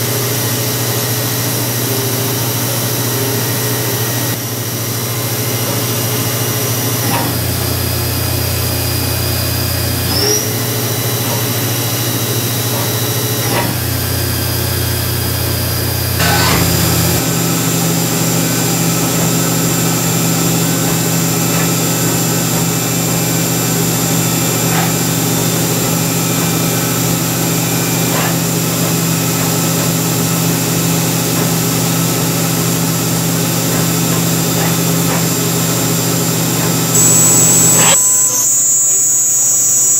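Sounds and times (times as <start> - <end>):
milling machine whine: 0.0 - 39.9.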